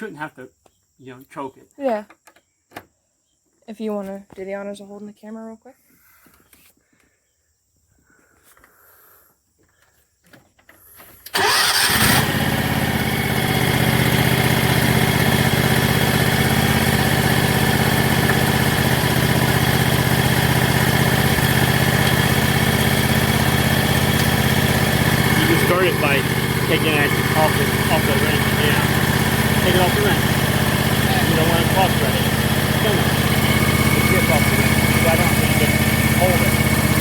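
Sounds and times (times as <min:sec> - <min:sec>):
lawn tractor engine starting: 0:11.2 - 0:37.0.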